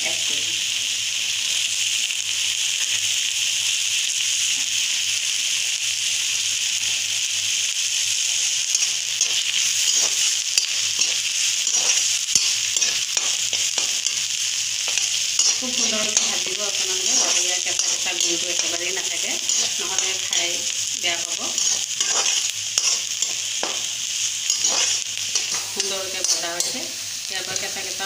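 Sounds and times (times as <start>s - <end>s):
onion sizzling in hot oil: 0.0s - 28.0s
steel spoon scraping a pan: 8.6s - 28.0s.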